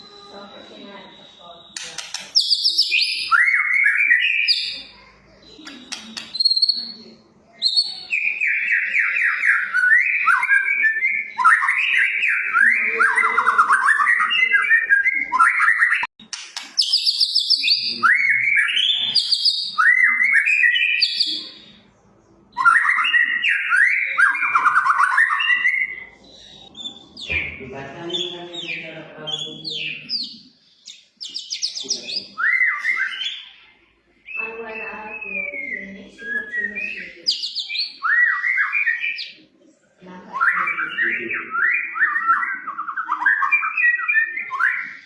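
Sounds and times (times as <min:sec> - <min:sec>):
songbird singing whistled phrases: 0:01.1 - 0:21.9, 0:22.5 - 0:39.4, 0:40.3 - 0:45.0.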